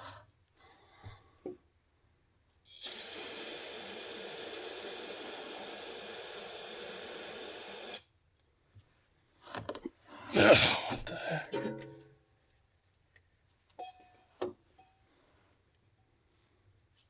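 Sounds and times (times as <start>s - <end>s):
spray nozzle hissing: 2.7s - 8.1s.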